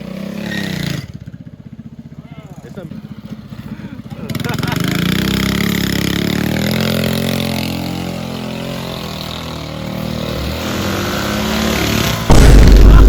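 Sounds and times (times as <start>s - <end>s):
small engine revving: 4.2s - 12.7s.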